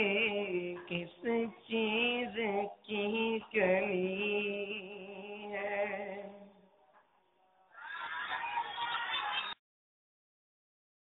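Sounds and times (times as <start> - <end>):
man singing: 0.0 - 6.5.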